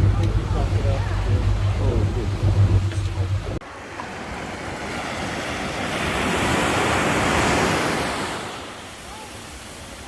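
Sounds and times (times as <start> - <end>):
wave breaking on beach: 3.6 - 10.0.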